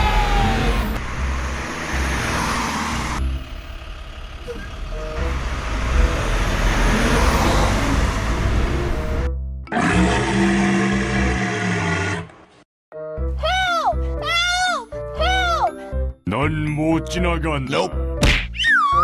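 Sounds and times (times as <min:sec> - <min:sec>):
truck engine rumbling: 0:00.0 - 0:09.4.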